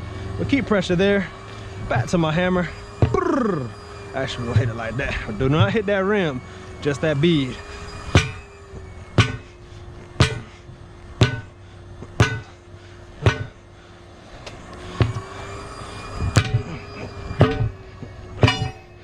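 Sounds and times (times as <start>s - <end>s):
faint steady hum: 0.0s - 19.0s
hammer striking tire: 3.0s - 3.7s, 8.1s - 8.5s, 9.1s - 9.6s, 10.2s - 12.6s, 13.2s - 13.6s, 15.0s - 15.2s, 16.3s - 16.8s, 17.4s - 19.0s.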